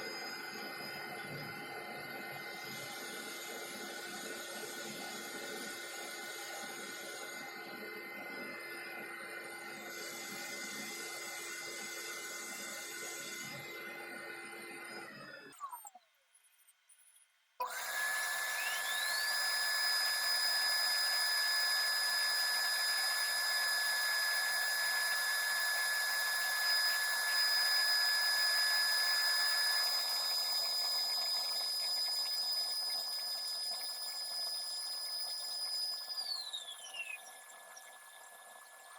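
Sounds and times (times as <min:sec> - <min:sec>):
high-pitched spindle whine: 0:00.0 - 0:38.9.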